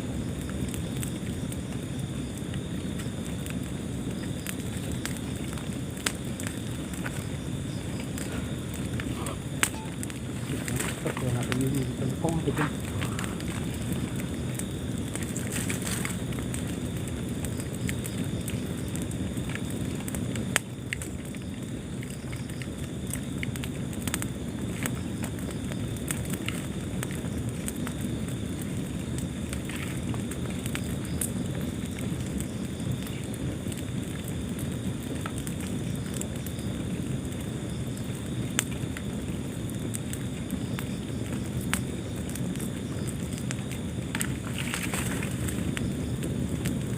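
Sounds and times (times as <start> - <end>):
fire burning in a fireplace: 0.0 - 46.9
fire popping: 0.0 - 46.9.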